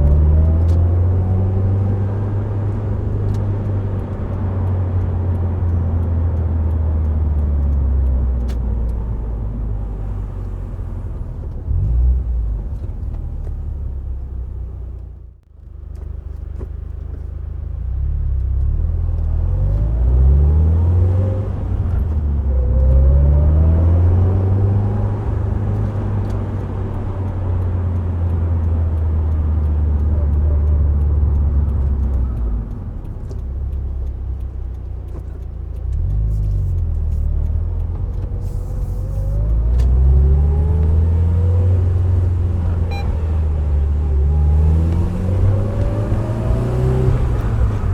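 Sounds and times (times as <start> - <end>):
car engine drone: 0.0 - 47.9.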